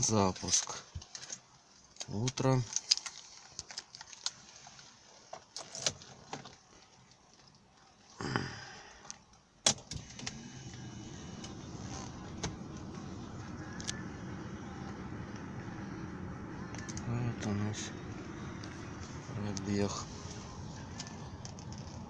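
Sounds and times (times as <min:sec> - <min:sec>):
car starter cranking: 0:09.7 - 0:22.0
car engine idling: 0:10.0 - 0:22.0.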